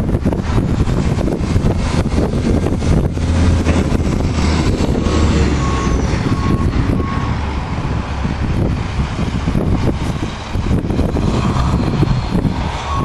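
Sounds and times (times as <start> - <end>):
heavy vehicle engine running: 0.0 - 13.0
reversing alarm beeping: 4.8 - 7.5, 12.7 - 13.0.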